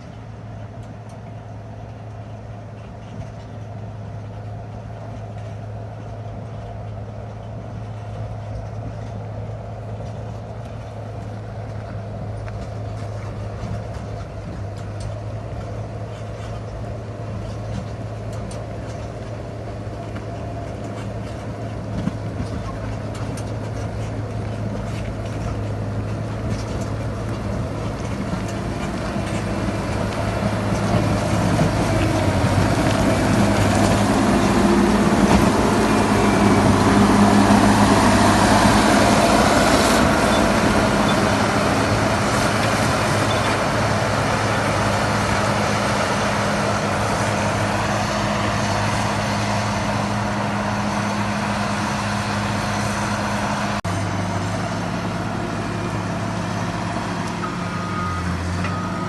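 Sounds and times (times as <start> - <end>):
grader diesel engine running: 0.0 - 59.0
reversing alarm beeping: 57.4 - 59.0.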